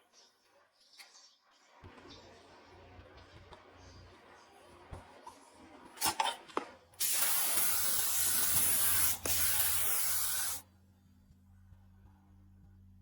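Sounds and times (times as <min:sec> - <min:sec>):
paint sprayer hissing: 0:07.0 - 0:10.6.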